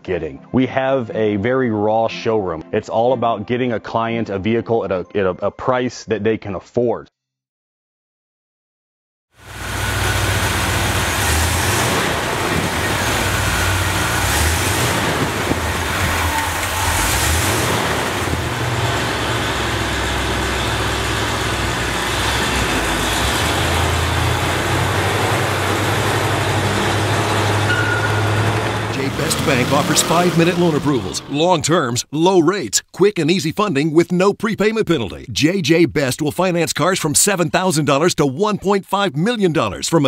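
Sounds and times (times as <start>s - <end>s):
truck engine rumble: 9.4s - 32.1s
road and wind noise: 9.5s - 31.4s.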